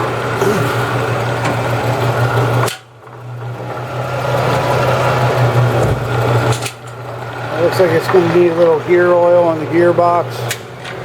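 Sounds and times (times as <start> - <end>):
motor and gearbox humming: 0.0 - 11.0.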